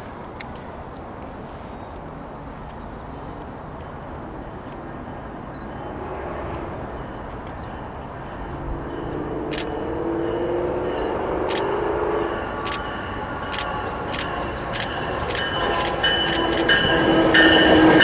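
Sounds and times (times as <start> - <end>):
diesel train approaching: 2.0 - 18.0.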